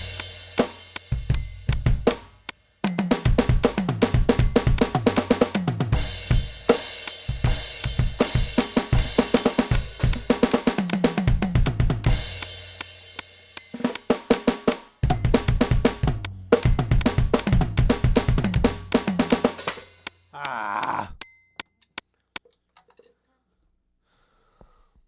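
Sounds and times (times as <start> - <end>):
electronic drum kit played fast: 0.0 - 2.3, 2.9 - 19.9.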